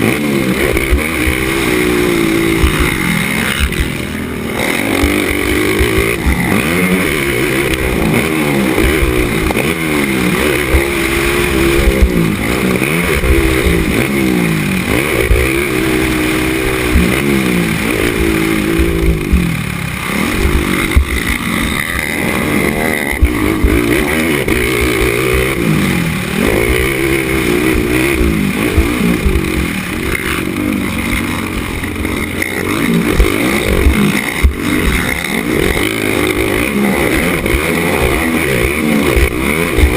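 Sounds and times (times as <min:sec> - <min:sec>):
quad engine revving: 0:00.0 - 0:39.9
low thumps: 0:18.1 - 0:19.6, 0:20.3 - 0:25.7.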